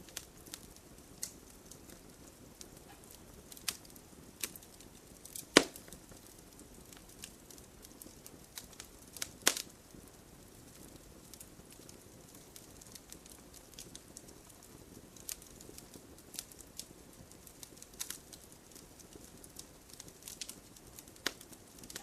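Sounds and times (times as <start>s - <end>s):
campfire crackling and popping: 0.0s - 22.0s
fire hissing: 0.0s - 22.0s.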